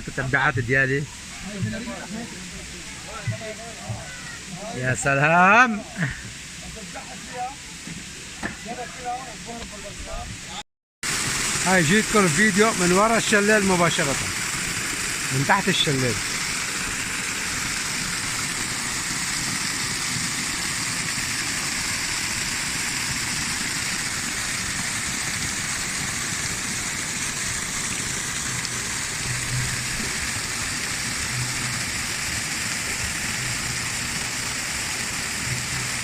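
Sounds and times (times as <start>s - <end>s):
waterfall pouring and splashing: 0.0s - 36.0s.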